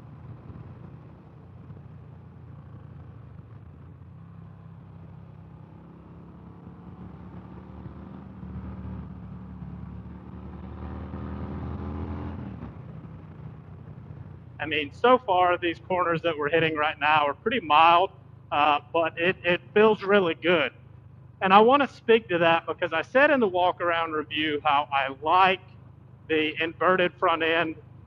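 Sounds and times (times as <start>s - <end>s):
motorcycle engine under throttle: 0.0s - 14.6s.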